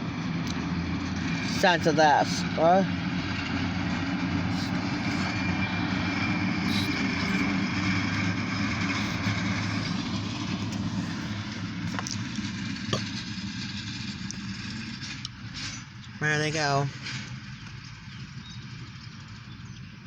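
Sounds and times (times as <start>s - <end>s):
diesel locomotive engines droning: 0.0s - 20.0s.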